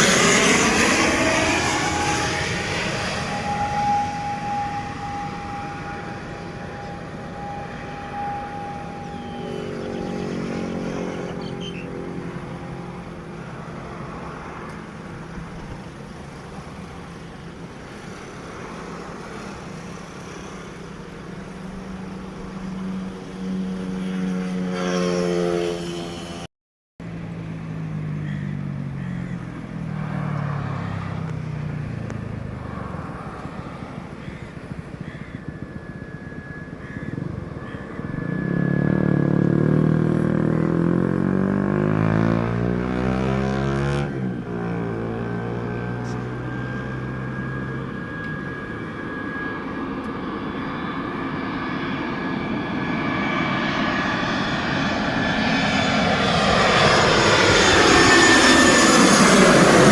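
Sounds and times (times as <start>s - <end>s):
passing vehicle engines: 0.0s - 59.9s
steady high whine: 0.0s - 59.9s.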